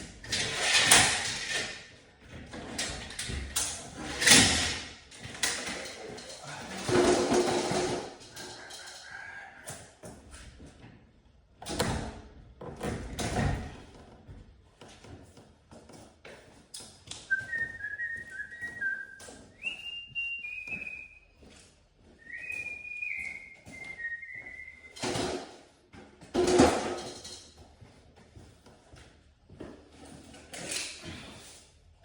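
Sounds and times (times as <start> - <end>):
person whistling a tune: 17.3 - 21.3, 22.2 - 25.0.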